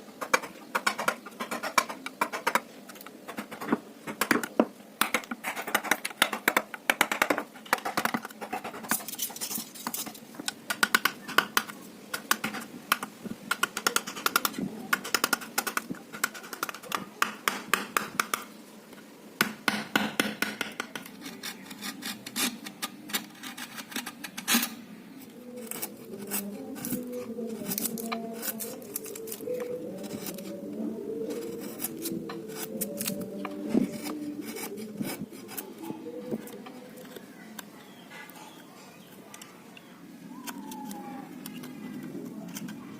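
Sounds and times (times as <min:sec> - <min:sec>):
scraping and rubbing wood: 0:00.0 - 0:18.5, 0:20.2 - 0:38.3
carving tools tapping wood: 0:00.2 - 0:08.9, 0:09.8 - 0:18.5, 0:19.4 - 0:22.5.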